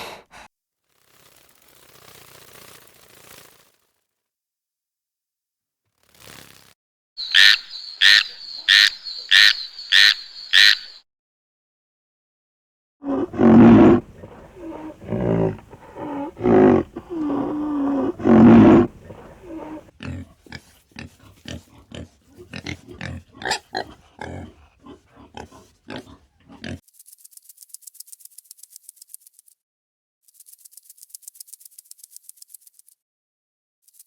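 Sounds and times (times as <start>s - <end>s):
high animal rattle: 1.1s - 3.8s, 7.2s - 10.8s, 13.1s - 29.4s
animal calling: 7.2s - 11.0s, 13.0s - 26.8s
animal clicks and grunts: 13.1s - 29.5s.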